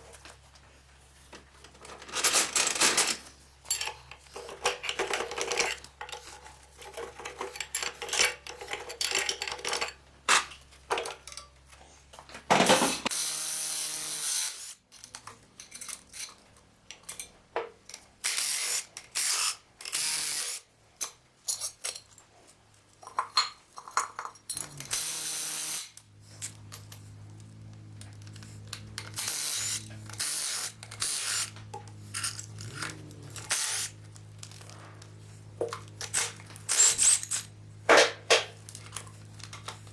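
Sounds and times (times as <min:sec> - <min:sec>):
tools clinking and scraping metal: 0:01.6 - 0:11.6, 0:14.9 - 0:18.1, 0:21.0 - 0:22.3, 0:23.0 - 0:25.0, 0:26.2 - 0:39.8
low machine hum: 0:26.1 - 0:39.9.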